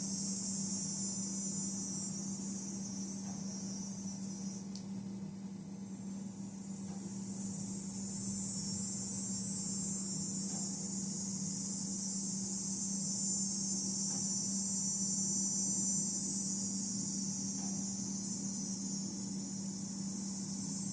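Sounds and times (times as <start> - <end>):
high-pitched insect chorus: 0.0 - 4.8, 6.0 - 20.9
steady low hum: 0.0 - 20.9.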